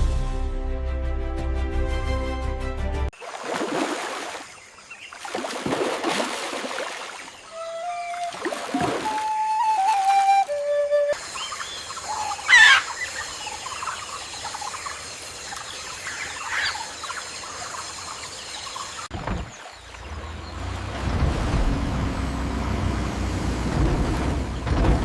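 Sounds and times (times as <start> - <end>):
birds calling: 6.8 - 21.2
heavy machinery engine rumble: 20.0 - 25.0.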